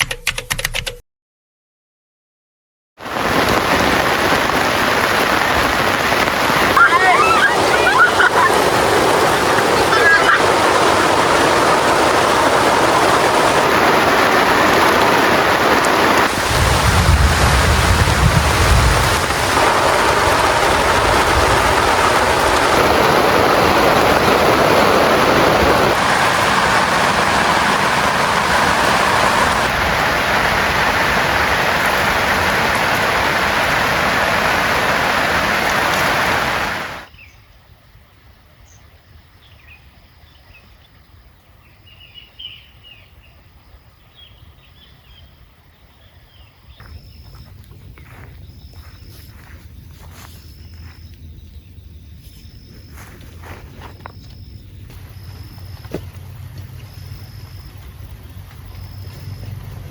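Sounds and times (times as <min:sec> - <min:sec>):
heavy rain pouring: 0:03.0 - 0:37.1, 0:53.0 - 0:59.9
faint high chirps: 0:46.0 - 0:56.2.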